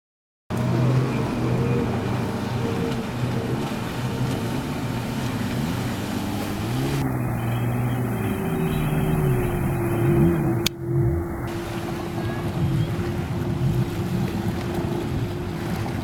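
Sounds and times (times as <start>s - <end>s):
jet ski engine revving: 0.5s - 16.0s.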